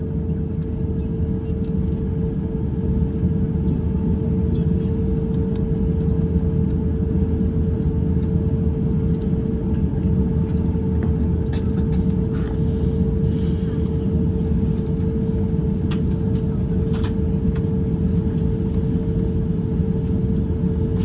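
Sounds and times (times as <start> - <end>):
aircraft cabin rumble: 0.0 - 21.0
mid-pitched hum: 0.0 - 21.0.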